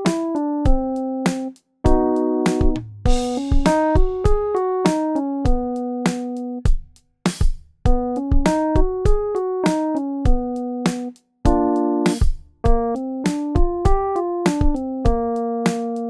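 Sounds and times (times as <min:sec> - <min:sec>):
electric piano chords: 0:00.0 - 0:06.7, 0:07.9 - 0:16.0
drum hits: 0:00.1 - 0:15.9.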